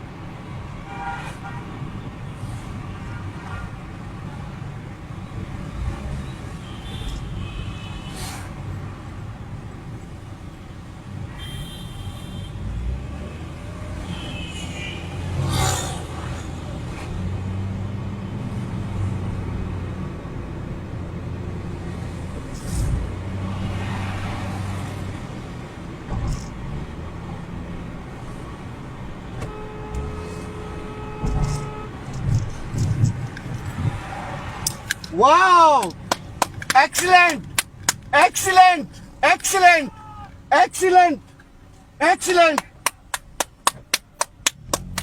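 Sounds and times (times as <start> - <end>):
road traffic: 0.0 - 45.0
vehicle passing: 15.1 - 19.9, 21.6 - 38.5.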